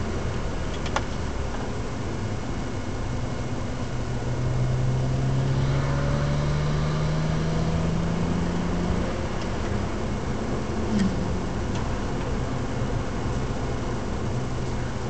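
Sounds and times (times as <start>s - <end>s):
car engine accelerating: 3.8s - 15.0s.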